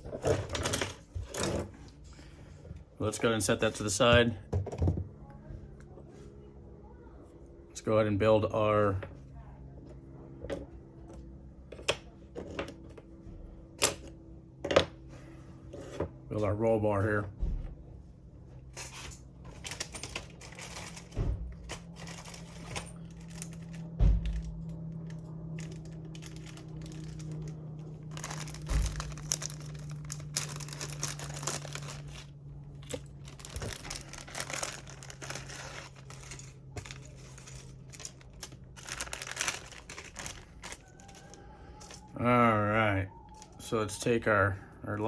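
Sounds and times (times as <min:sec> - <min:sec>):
steady low hum: 0:00.0 - 0:45.0
small parts clicking and rustling: 0:18.7 - 0:42.1
plastic packaging crinkling: 0:19.6 - 0:42.0.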